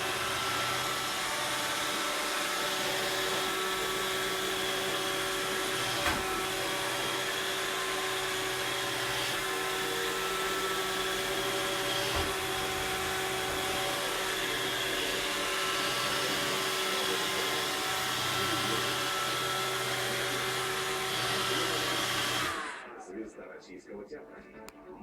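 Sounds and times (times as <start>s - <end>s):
robot vacuum motor whine: 0.0s - 22.9s.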